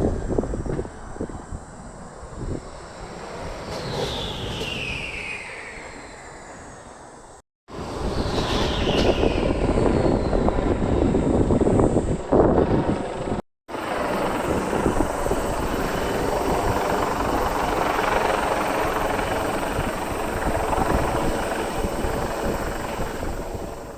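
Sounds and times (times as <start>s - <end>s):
electric race car whine passing: 0.0s - 12.8s.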